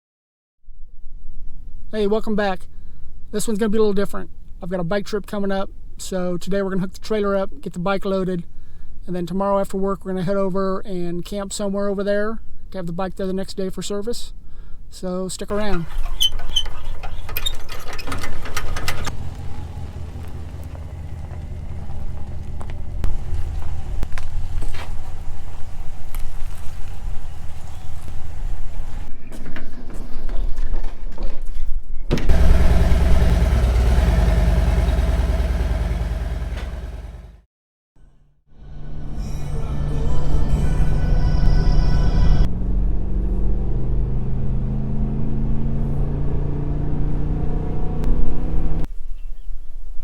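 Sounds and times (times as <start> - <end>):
pickup truck engine running: 18.2 - 29.1, 32.3 - 37.4.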